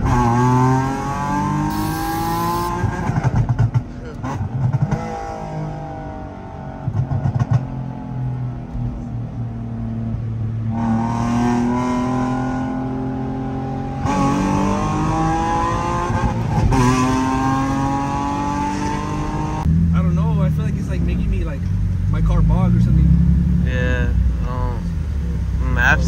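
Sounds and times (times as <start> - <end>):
car engine revving through loud exhaust: 0.0 - 8.4, 9.9 - 20.0.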